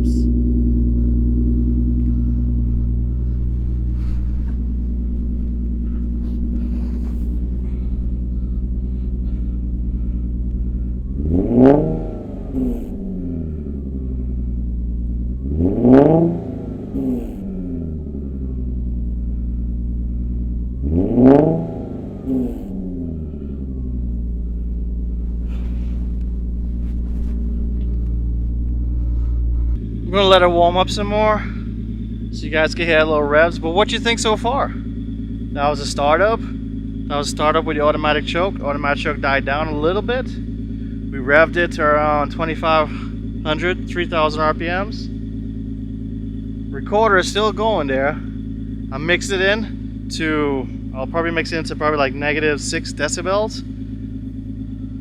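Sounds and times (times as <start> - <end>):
car engine idling: 0.0 - 55.0
engine revving: 0.0 - 55.0.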